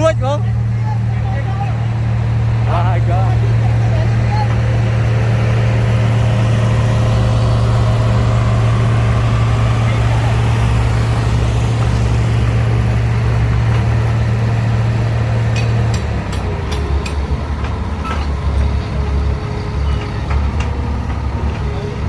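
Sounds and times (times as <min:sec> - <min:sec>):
diesel engine running hard: 0:00.0 - 0:22.0
sharp metal clanks: 0:15.5 - 0:17.3.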